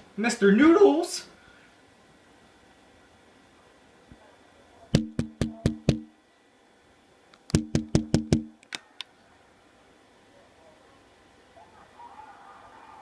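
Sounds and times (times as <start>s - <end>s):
knocking on hollow surface: 5.0s - 6.1s, 7.6s - 8.5s.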